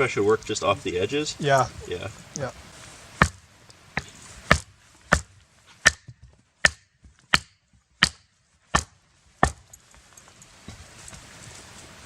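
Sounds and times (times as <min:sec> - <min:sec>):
axe chopping firewood: 0:03.2 - 0:09.8.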